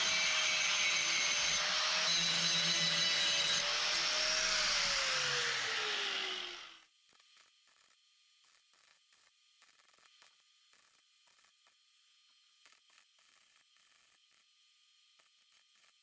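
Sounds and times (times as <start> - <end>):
electric grinder whining: 0.0 - 6.8.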